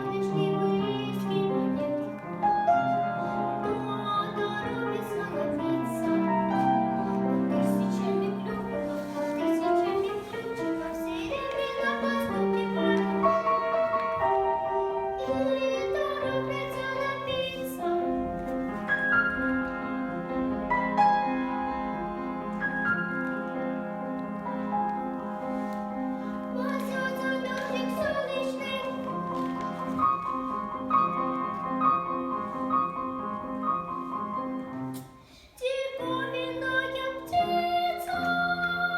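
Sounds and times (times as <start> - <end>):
girl singing: 0.0 - 20.2, 25.6 - 30.8, 35.4 - 38.9
piano accompaniment: 0.0 - 38.9.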